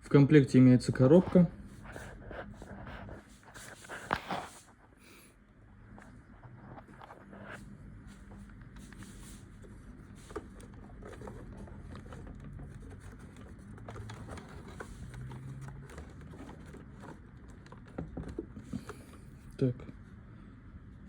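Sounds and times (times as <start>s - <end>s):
low steady hum: 0.0s - 21.0s
handling clicks and scrapes: 6.5s - 19.6s.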